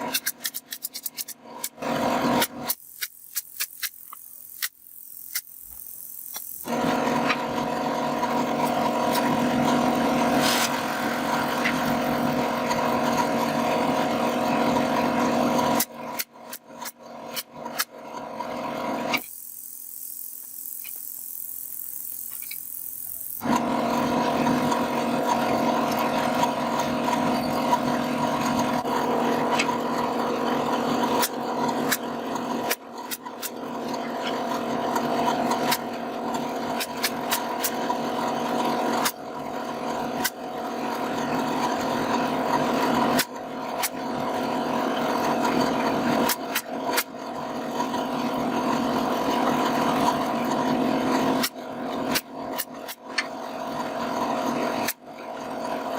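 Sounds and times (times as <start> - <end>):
scattered clicks: 0.0 - 1.8, 2.4 - 6.7, 19.2 - 23.4
power tool whining on wood: 1.2 - 55.9.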